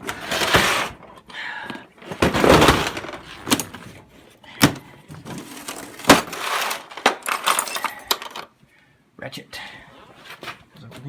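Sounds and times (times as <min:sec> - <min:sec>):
tools clattering in toolkit: 0:02.2 - 0:04.0, 0:04.6 - 0:08.5.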